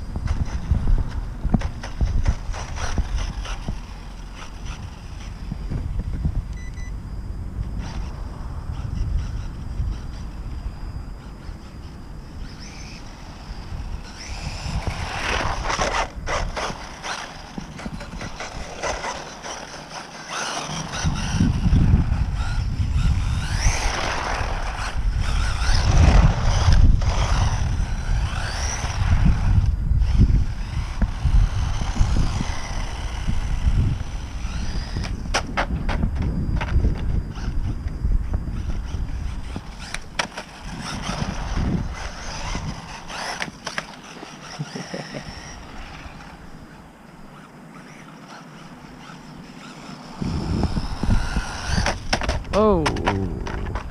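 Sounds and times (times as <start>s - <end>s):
electric motor whining: 0.0s - 53.9s
heavy low rumble: 52.4s - 53.9s.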